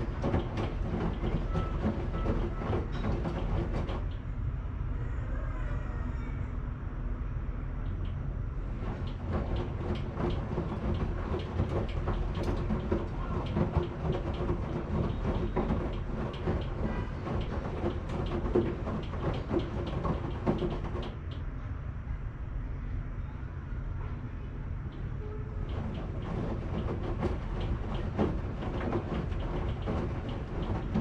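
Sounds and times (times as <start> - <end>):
drum rattling clicks and knocks: 0.0 - 4.2, 8.6 - 21.4, 25.6 - 31.0
washing machine humming: 0.0 - 4.4, 7.8 - 21.4, 24.8 - 31.0.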